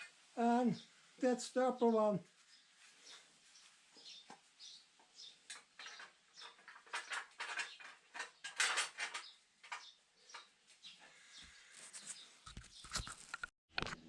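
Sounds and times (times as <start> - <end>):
metal parts and tools clinking: 5.5 - 10.5.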